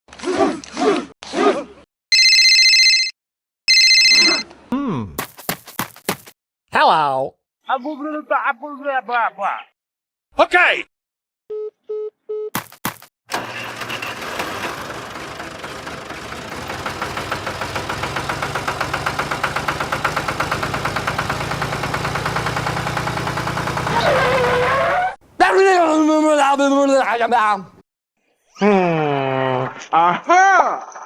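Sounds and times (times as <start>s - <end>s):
short beeps: 3.7s - 4.4s
engine chugging: 13.3s - 24.9s.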